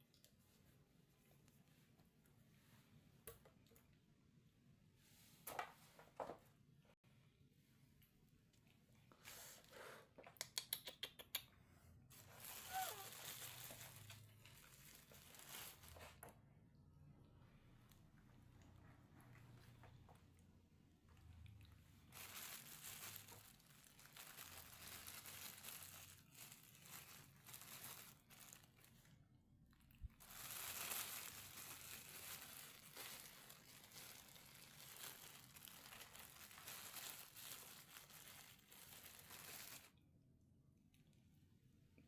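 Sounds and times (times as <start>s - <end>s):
crinkling and rustling: 12.1s - 16.4s, 17.9s - 40.0s.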